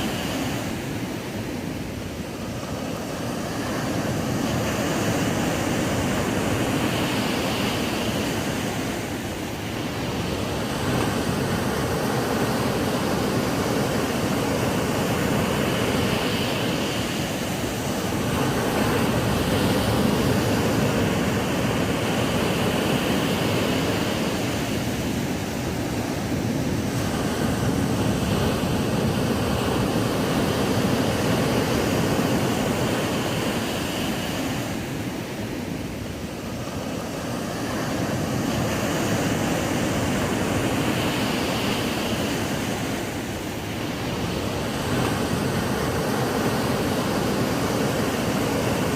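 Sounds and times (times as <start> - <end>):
ocean waves breaking on beach: 0.0 - 48.9.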